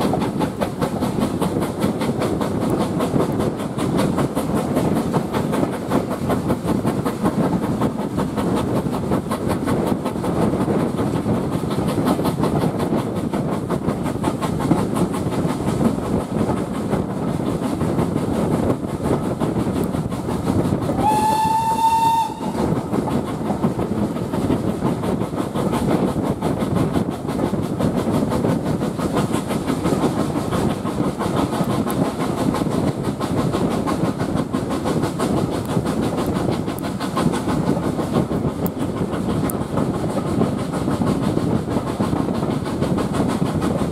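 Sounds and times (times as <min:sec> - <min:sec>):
train rail running noise: 0:00.0 - 0:43.9
steam locomotive whistle: 0:20.9 - 0:22.7.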